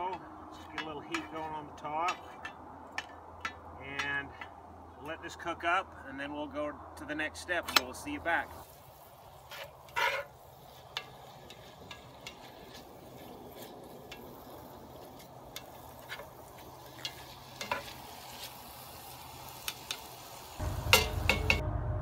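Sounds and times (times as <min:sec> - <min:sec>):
food sizzling in a pot: 0:08.6 - 0:21.6
spatula scraping a pot: 0:09.4 - 0:14.4.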